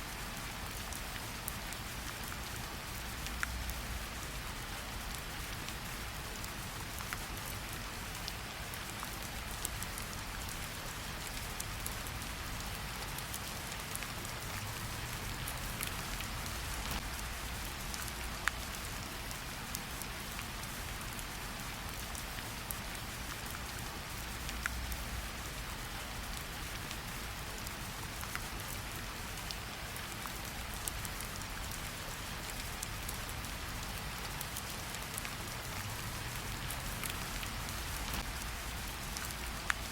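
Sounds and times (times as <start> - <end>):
steady rain falling: 0.0 - 39.9
raindrops ticking: 11.2 - 20.4, 30.5 - 39.9.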